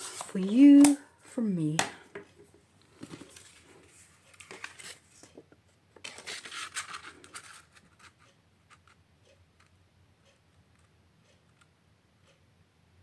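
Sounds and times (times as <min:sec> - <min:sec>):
paper rustling: 0:00.0 - 0:01.0, 0:02.9 - 0:05.4, 0:06.0 - 0:08.2.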